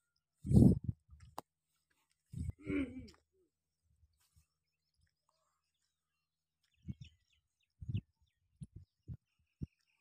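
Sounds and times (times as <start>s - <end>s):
faint bird chirps: 2.5s - 10.0s.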